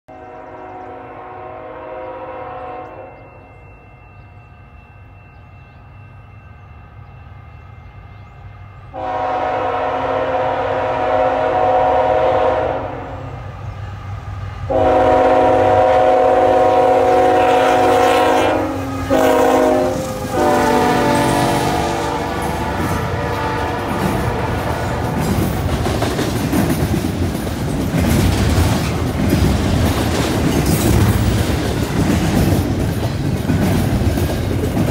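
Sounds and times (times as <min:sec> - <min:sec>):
locomotive air horn blasts: 0:00.1 - 0:03.5, 0:08.9 - 0:13.2, 0:14.7 - 0:25.2
train wheels clacking over rail joints: 0:19.1 - 0:34.9.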